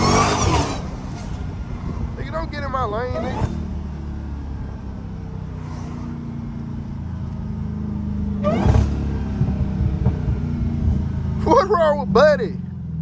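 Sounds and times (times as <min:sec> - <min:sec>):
car exhaust rumbling: 0:00.0 - 0:13.0.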